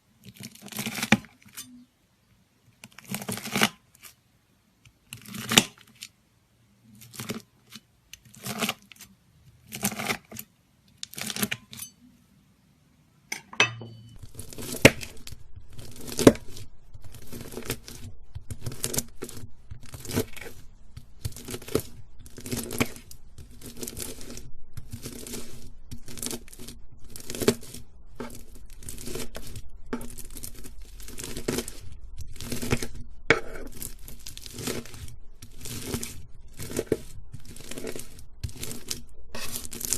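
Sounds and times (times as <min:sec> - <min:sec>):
knife slicing crunchy slime: 0:00.2 - 0:01.8, 0:02.8 - 0:04.2, 0:05.0 - 0:06.0, 0:07.0 - 0:12.0, 0:14.2 - 0:39.9
faint low hum: 0:11.6 - 0:39.9.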